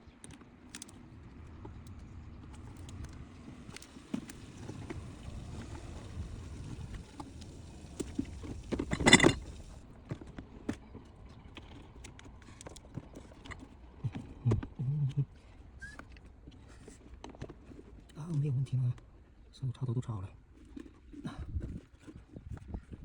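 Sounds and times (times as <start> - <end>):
scraping clatter: 8.0 - 9.8
car interior parts clicking and rattling: 8.1 - 14.8.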